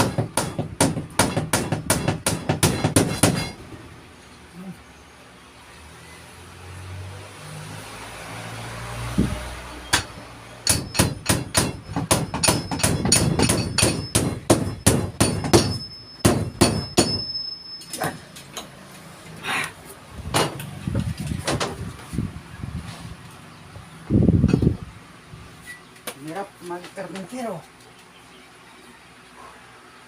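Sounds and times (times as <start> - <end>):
hammer driving nails: 0.0 - 3.6, 9.9 - 17.4.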